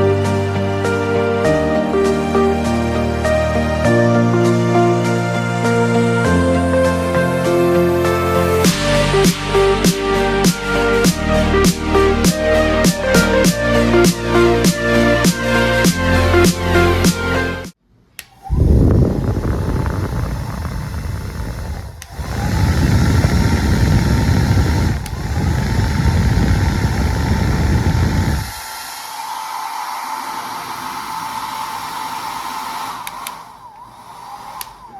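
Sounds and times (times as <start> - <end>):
airflow rumbling on microphone: 18.4 - 34.9
hair dryer running: 18.4 - 34.9.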